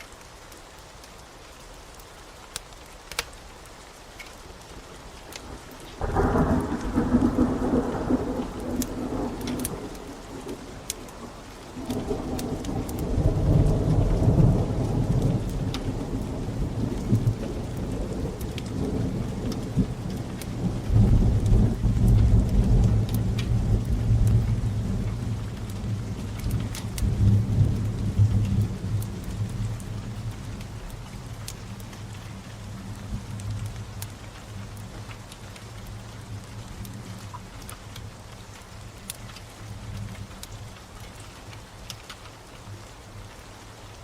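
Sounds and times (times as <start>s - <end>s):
steady rain: 0.0s - 44.0s
rolling thunder: 5.4s - 10.7s, 11.8s - 30.0s.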